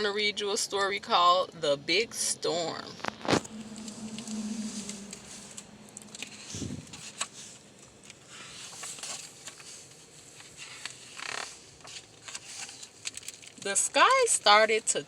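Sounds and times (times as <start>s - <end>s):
book pages turning: 3.0s - 13.6s.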